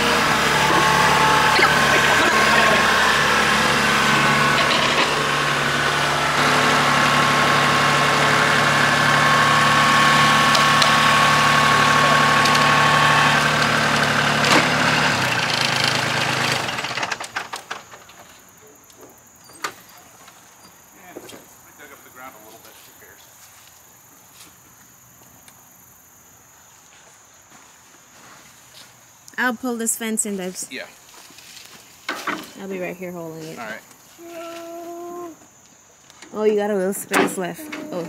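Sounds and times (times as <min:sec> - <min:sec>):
tractor diesel engine running: 0:00.0 - 0:18.1, 0:36.3 - 0:38.0.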